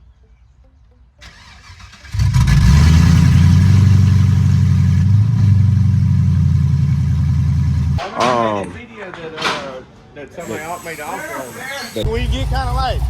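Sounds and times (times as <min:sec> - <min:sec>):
engine cranking: 0:01.2 - 0:05.8
engine running loud: 0:01.7 - 0:08.0.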